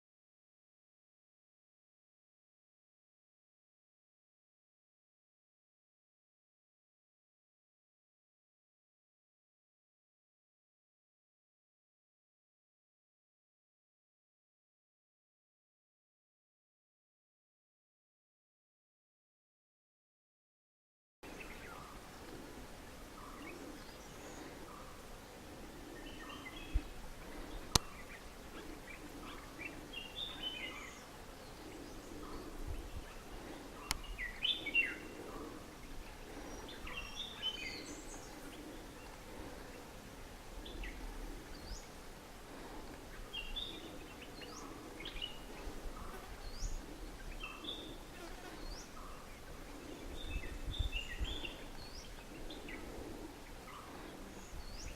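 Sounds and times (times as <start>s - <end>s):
birds chirping and whistling: 26.0s - 35.5s.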